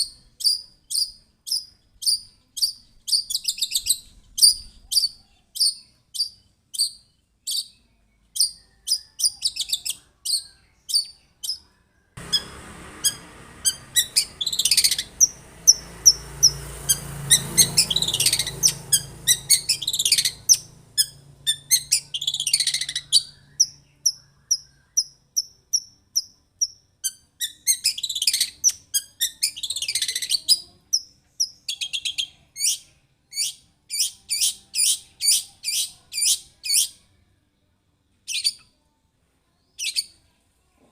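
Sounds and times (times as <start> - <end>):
bird chirping: 0.0 - 37.1, 38.2 - 38.8, 39.4 - 40.4
harsh rasping bird calls: 12.2 - 26.3.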